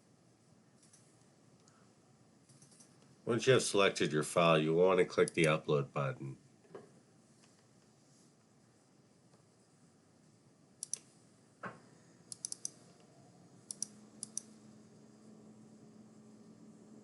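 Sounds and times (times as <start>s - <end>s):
computer mouse clicks: 0.8s - 1.8s, 2.5s - 3.1s, 5.2s - 5.6s, 10.8s - 11.1s, 12.3s - 14.6s.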